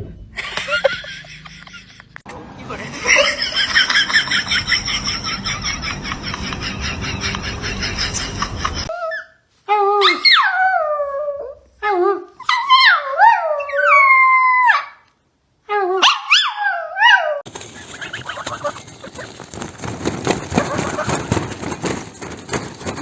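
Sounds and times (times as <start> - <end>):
busy noisy sound: 0.3 - 8.9.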